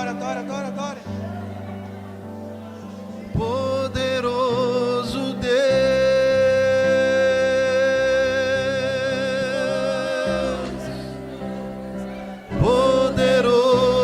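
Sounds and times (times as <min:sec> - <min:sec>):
person singing a long note: 0:00.0 - 0:11.5, 0:12.1 - 0:14.0
sustained instrumental chords: 0:00.0 - 0:14.0.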